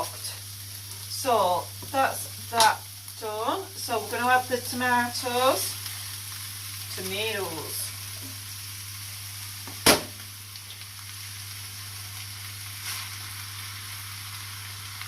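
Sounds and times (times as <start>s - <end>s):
meat sizzling in frying pan: 0.0s - 15.0s
sharp knock: 9.8s - 10.2s.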